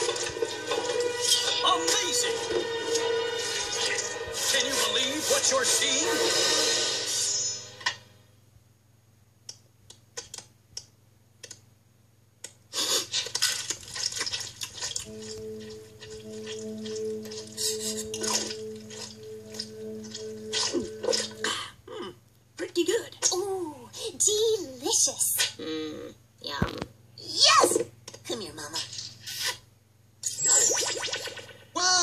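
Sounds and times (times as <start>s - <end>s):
wet chewing and munching: 12.8s - 21.3s
steady low hum: 14.2s - 24.2s.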